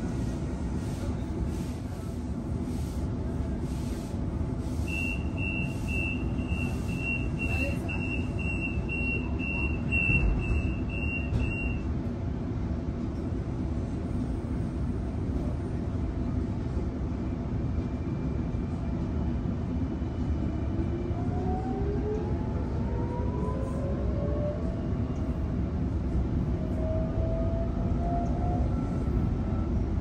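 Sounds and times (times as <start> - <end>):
train carriage hum: 0.0 - 30.0
door warning beeps: 4.9 - 11.8.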